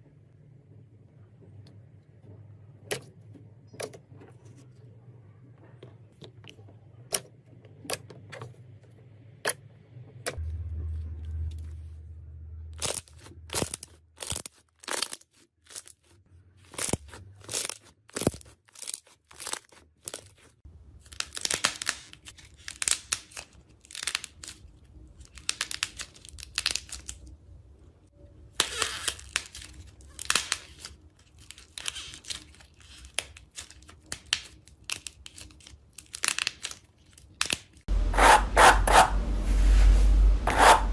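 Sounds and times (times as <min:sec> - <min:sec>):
crunchy material crackling and tearing: 0:12.7 - 0:27.3, 0:28.6 - 0:37.9.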